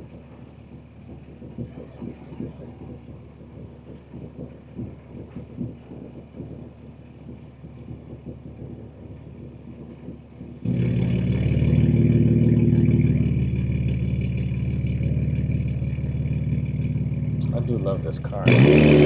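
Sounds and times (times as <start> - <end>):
car engine accelerating: 10.7 - 19.0.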